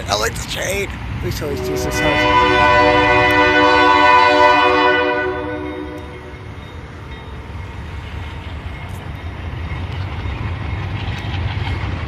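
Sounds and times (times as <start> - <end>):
passing train rumble: 0.0 - 12.0
locomotive air horn chord: 1.5 - 6.5.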